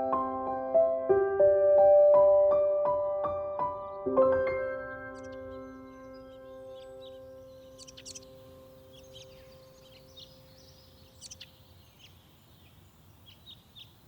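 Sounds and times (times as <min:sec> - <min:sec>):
songbirds chirping: 0:03.0 - 0:14.0.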